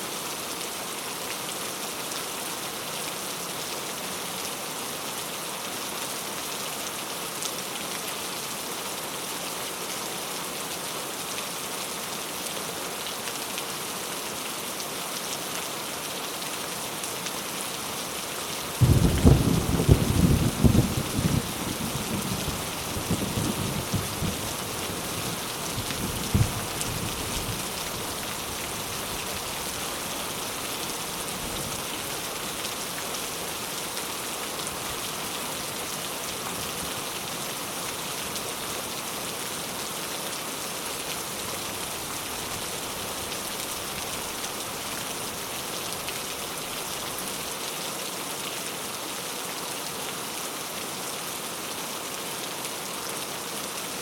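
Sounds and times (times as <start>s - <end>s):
rain pattering: 15.2s - 47.6s.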